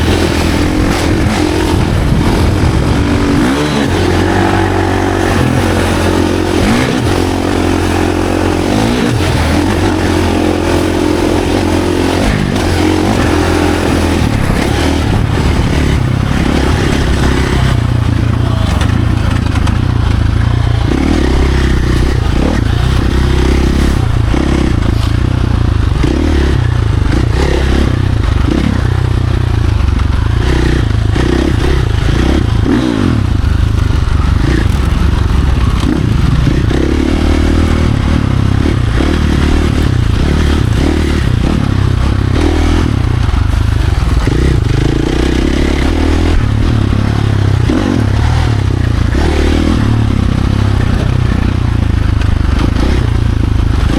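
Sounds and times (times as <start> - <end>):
rattling and scraping: 0.0 - 26.0, 33.4 - 37.0
dirt bike engine revving: 0.0 - 53.9.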